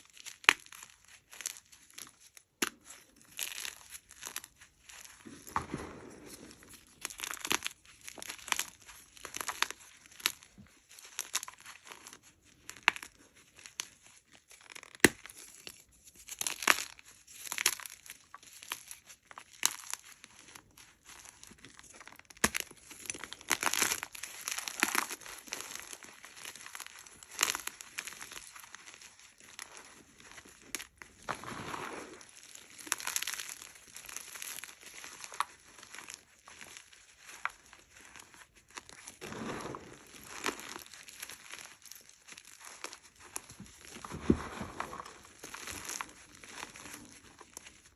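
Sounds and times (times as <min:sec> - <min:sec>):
chalk crunching by hand: 0:23.6 - 0:47.9.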